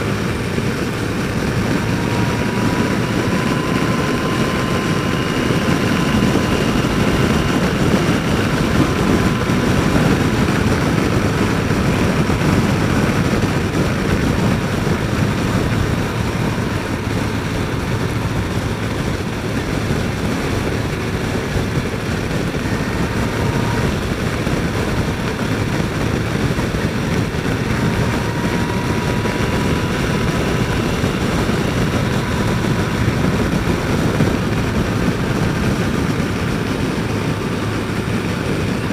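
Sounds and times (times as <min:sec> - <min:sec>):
faint motorcycle engine whine: 0:00.0 - 0:38.9
wind rushing over microphone: 0:00.0 - 0:38.9.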